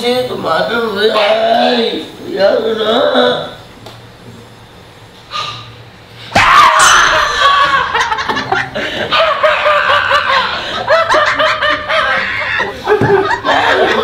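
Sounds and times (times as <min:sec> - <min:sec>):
loud shriek: 0:06.3 - 0:07.9
young men laughing: 0:06.8 - 0:14.0.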